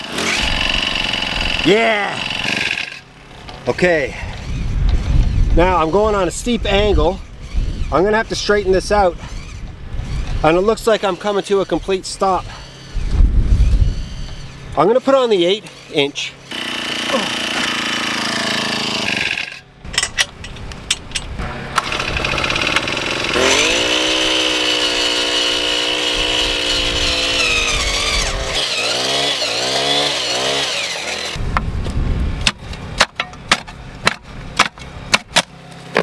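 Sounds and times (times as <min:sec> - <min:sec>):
earth auger engine revving: 0:00.0 - 0:19.6, 0:20.6 - 0:31.6
sharp knocks: 0:32.4 - 0:35.5.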